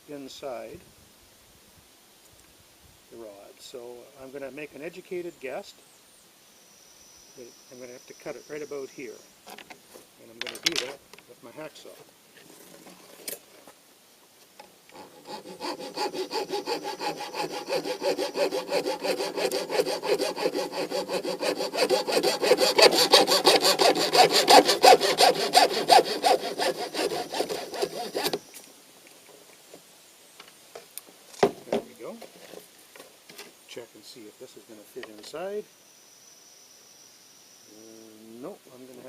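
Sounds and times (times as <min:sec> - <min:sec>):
hacksaw cutting rod: 0:14.9 - 0:28.4.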